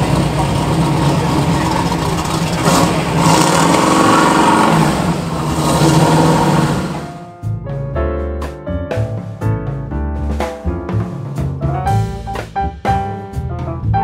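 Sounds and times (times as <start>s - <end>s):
car engine running: 0.0s - 7.3s.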